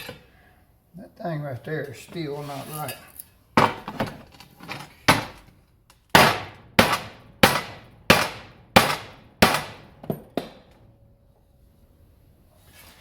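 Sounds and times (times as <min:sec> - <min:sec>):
hammer striking steel bumper: 0:06.1 - 0:10.7.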